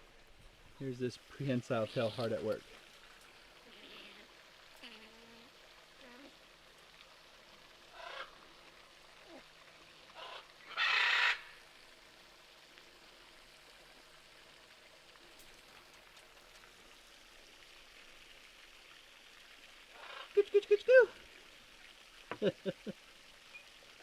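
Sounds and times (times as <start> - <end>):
parrot squawk: 8.0 - 8.3, 10.2 - 11.5, 20.0 - 20.4.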